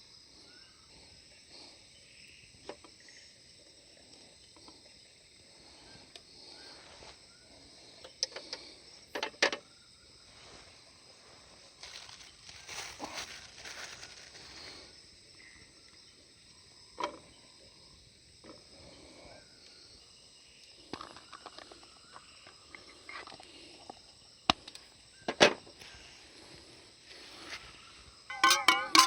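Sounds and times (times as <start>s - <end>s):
insects chirring: 0.0s - 29.0s
small clicks and knocks: 8.0s - 9.6s.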